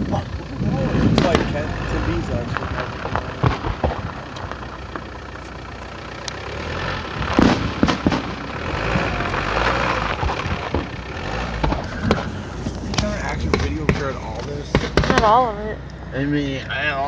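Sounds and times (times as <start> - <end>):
car engine low rumble: 0.0 - 17.0
road noise: 0.0 - 17.0
sharp knocks: 11.5 - 15.4.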